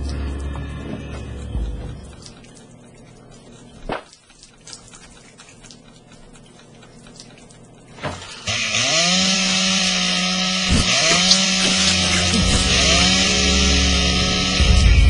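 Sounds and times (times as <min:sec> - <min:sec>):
chainsaw revving: 0:08.3 - 0:15.0.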